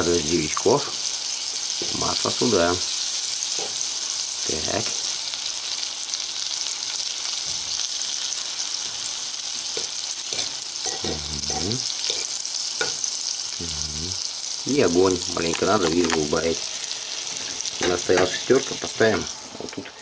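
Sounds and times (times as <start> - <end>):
mushrooms sizzling in a frying pan: 0.0 - 20.0
fork stirring in a pan: 9.7 - 11.2, 12.0 - 13.1.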